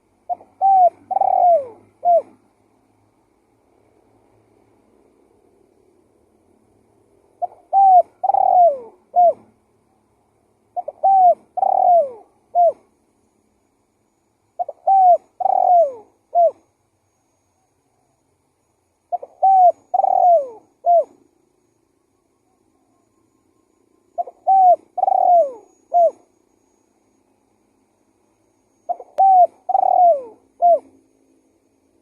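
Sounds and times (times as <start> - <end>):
dove cooing: 0.3 - 2.4, 7.4 - 9.6, 10.8 - 12.9, 14.6 - 16.7, 19.1 - 21.2, 24.2 - 26.3, 28.9 - 31.0.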